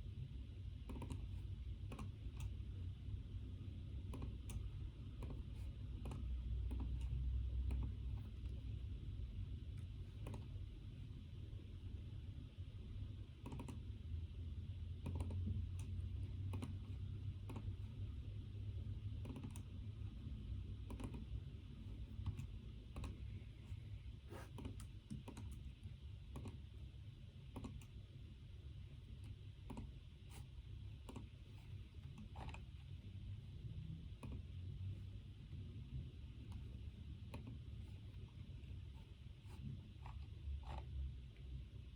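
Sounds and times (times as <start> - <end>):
steady low hum: 0.0 - 41.9
computer keyboard key clicks: 0.8 - 1.3, 4.0 - 4.6, 10.2 - 10.5, 13.4 - 13.8, 15.0 - 15.9, 19.2 - 19.7, 20.8 - 21.3, 24.5 - 25.7, 26.3 - 26.6, 27.5 - 28.0, 29.6 - 29.9, 31.0 - 31.3, 34.2 - 34.5.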